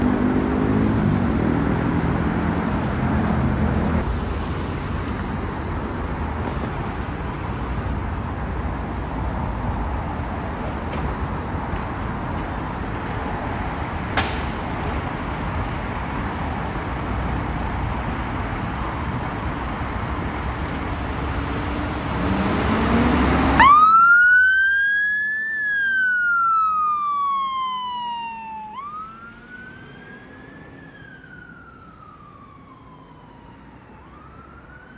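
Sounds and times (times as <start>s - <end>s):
traffic road and engine noise: 0.0s - 34.9s
sharp click: 14.2s - 14.7s
emergency siren wailing: 20.6s - 34.9s.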